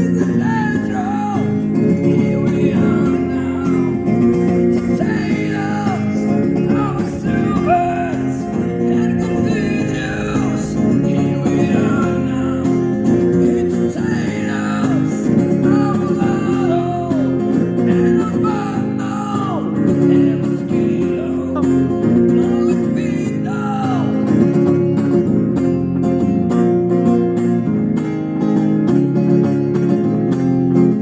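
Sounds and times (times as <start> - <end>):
electric guitar lead melody: 0.0 - 31.0
chordal backing: 2.1 - 18.1.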